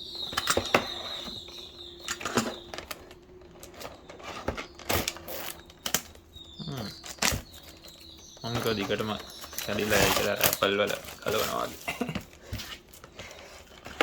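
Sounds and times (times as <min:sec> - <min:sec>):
faint steady high tone: 0:00.0 - 0:04.1
box and plastic packaging handled: 0:00.0 - 0:14.0.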